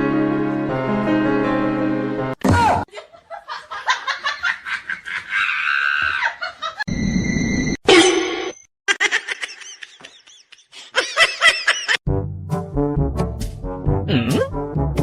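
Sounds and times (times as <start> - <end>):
background music: 0.0 - 2.4, 12.1 - 15.0
person laughing: 8.9 - 12.0.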